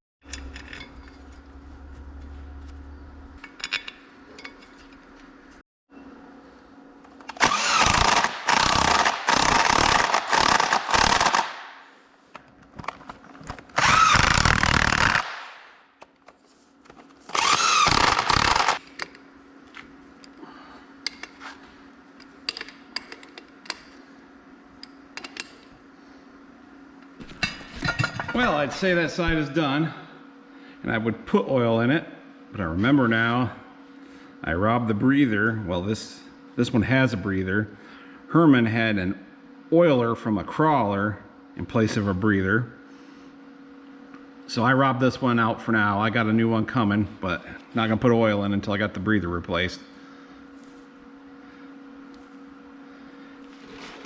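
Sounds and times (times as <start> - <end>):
power tool driving bolts: 7.2 - 11.6, 13.7 - 15.6, 17.3 - 18.8.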